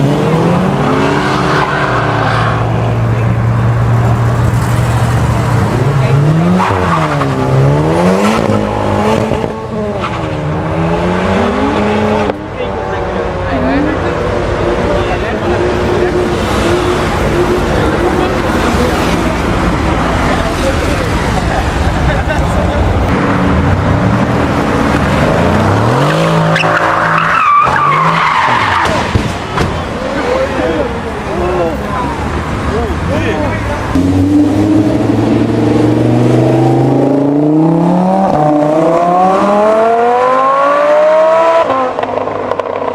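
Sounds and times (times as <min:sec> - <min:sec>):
squealing tyre-like whine: 0:00.2 - 0:03.5, 0:25.5 - 0:29.1
car engine revving hard: 0:05.6 - 0:12.4, 0:23.4 - 0:29.0, 0:33.9 - 0:42.9
sports car engine accelerating: 0:33.9 - 0:42.9.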